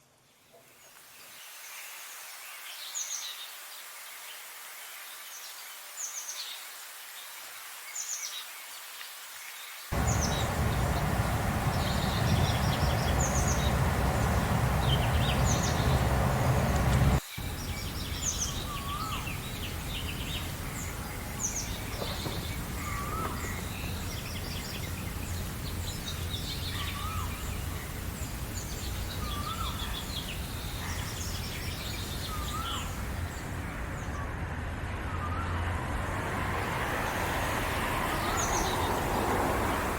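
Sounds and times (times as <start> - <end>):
low rising and falling bird call: 10.0 - 20.5
background rumble: 10.0 - 26.4
songbirds chirping and singing: 10.0 - 34.2.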